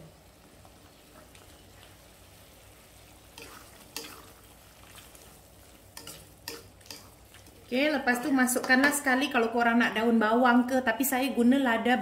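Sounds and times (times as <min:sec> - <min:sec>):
meat sizzling in a wok: 0:00.0 - 0:09.5
metal spatula scraping wok: 0:03.3 - 0:09.6.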